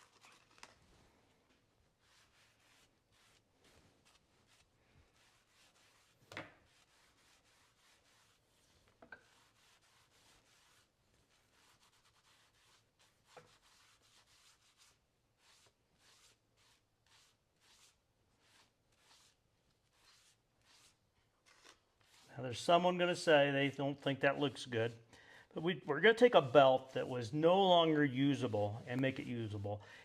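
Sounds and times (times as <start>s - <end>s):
applicator rubbing on leather: 1.9s - 23.4s.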